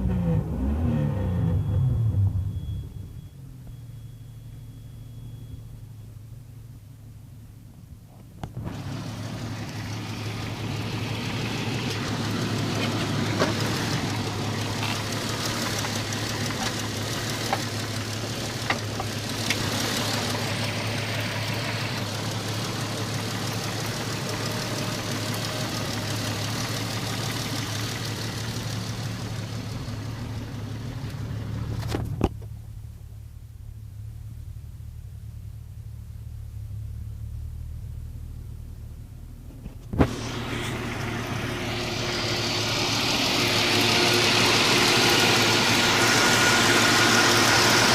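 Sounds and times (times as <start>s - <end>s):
low engine hum: 0.0s - 47.9s
vehicle rushing noise: 39.5s - 47.9s.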